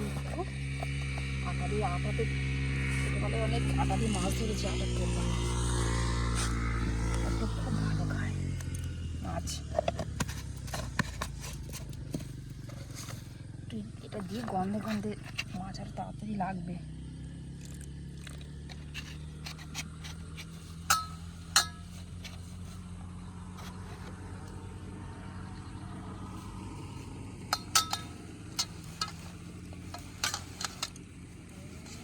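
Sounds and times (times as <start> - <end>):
steady low hum: 0.0 - 32.0
sharp clinks and taps: 27.5 - 29.3.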